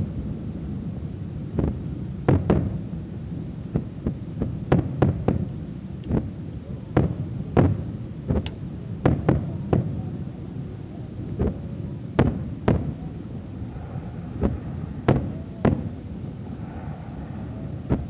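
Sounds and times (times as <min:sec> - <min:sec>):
steady low rumble: 0:00.0 - 0:18.0
fireworks bangs with rumbling echo: 0:01.4 - 0:02.9, 0:03.7 - 0:10.1, 0:11.2 - 0:16.6, 0:17.8 - 0:18.0.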